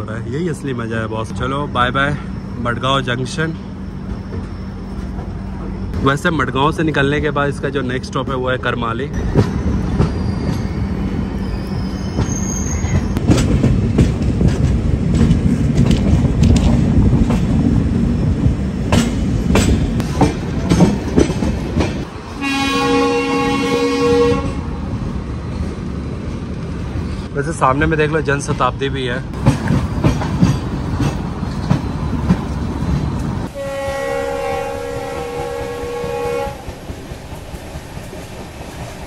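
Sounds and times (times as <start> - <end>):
train wheel rumble: 0.0 - 39.0
wind: 0.0 - 39.0
rail-joint clicks and clatter: 0.8 - 22.3, 24.4 - 33.5, 34.5 - 39.0
train horn: 22.4 - 24.7, 33.5 - 36.8.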